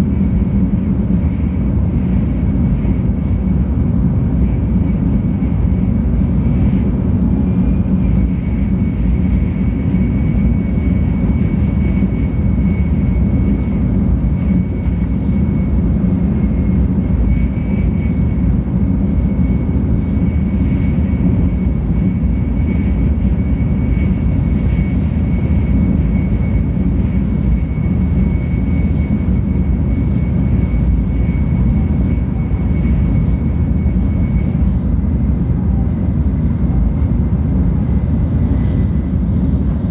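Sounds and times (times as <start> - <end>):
faint high whine: 0.0 - 39.9.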